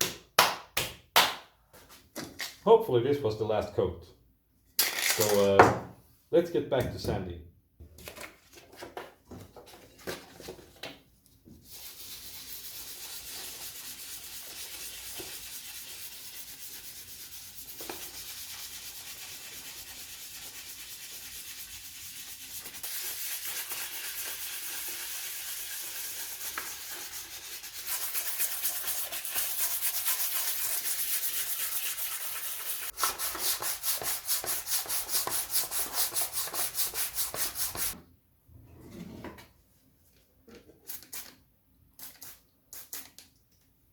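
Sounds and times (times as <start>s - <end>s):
sandpaper rubbing on plastic: 11.7s - 38.0s.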